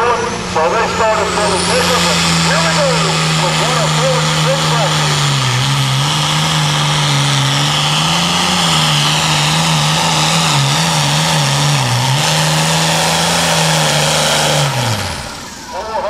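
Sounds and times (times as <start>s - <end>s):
tractor diesel engine at high revs: 0.0s - 16.0s.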